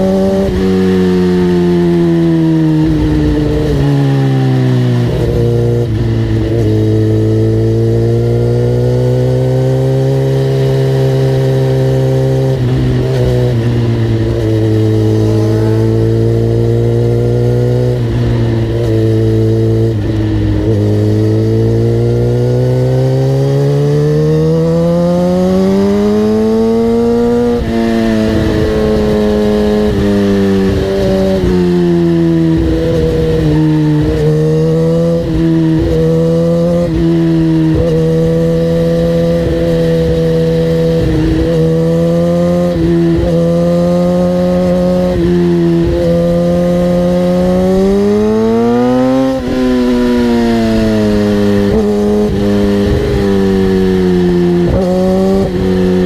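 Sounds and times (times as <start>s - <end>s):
vehicle engine running hard: 0.0s - 56.0s.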